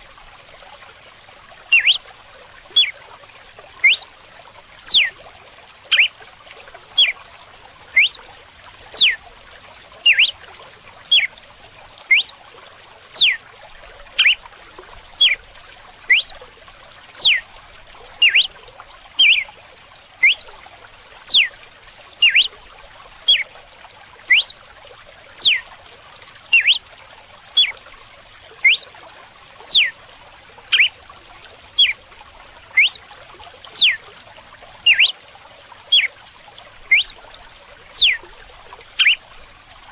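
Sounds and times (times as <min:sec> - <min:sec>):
trickle of running water: 0:00.0 - 0:39.9
bird whistling song: 0:01.7 - 0:02.1, 0:02.7 - 0:03.0, 0:03.8 - 0:04.1, 0:04.9 - 0:05.2, 0:05.9 - 0:06.1, 0:06.9 - 0:07.2, 0:07.9 - 0:08.2, 0:08.9 - 0:09.2, 0:10.0 - 0:10.4, 0:11.1 - 0:11.3, 0:12.1 - 0:12.4, 0:13.1 - 0:13.4, 0:14.2 - 0:14.4, 0:15.2 - 0:15.4, 0:16.1 - 0:16.4, 0:17.2 - 0:17.4, 0:18.2 - 0:18.5, 0:19.2 - 0:19.5, 0:20.2 - 0:20.5, 0:21.2 - 0:21.6, 0:22.2 - 0:22.6, 0:23.3 - 0:23.5, 0:24.3 - 0:24.6, 0:25.4 - 0:25.6, 0:26.5 - 0:26.8, 0:27.6 - 0:27.8, 0:28.6 - 0:28.9, 0:29.6 - 0:29.9, 0:30.7 - 0:31.0, 0:31.8 - 0:32.0, 0:32.7 - 0:33.0, 0:33.7 - 0:34.0, 0:34.8 - 0:35.2, 0:35.9 - 0:36.1, 0:36.9 - 0:37.2, 0:37.9 - 0:38.2, 0:39.0 - 0:39.2.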